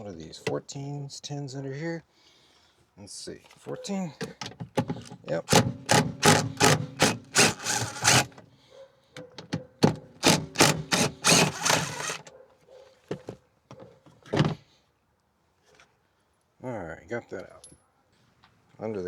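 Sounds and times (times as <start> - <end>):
tool clicking on bolt: 4.8 - 8.4, 9.8 - 12.3.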